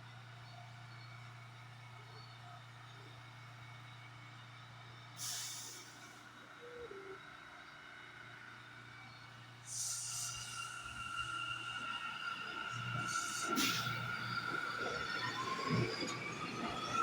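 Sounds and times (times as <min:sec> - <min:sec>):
train air brakes hissing: 0:05.2 - 0:06.2, 0:09.6 - 0:14.8.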